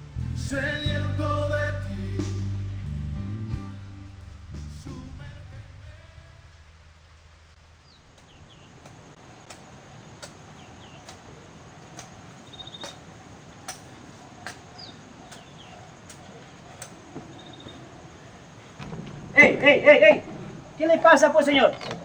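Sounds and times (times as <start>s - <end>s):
background hiss: 0.0s - 22.0s
birds chirping: 7.7s - 22.0s
sharp ticks: 11.0s - 17.0s.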